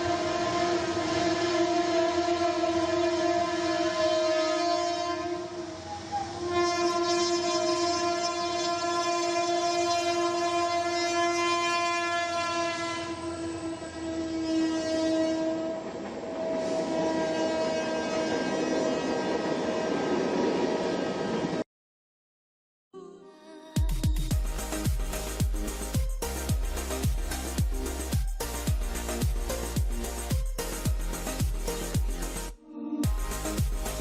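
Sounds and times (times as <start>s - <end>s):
locomotive horn blasts: 0.0s - 19.8s
rumble of passing train: 0.0s - 21.6s.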